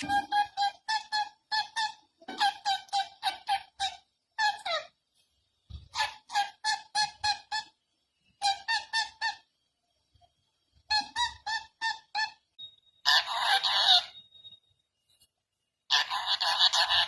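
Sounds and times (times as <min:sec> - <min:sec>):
parrot sharp calls: 0:13.0 - 0:14.2, 0:15.9 - 0:17.0.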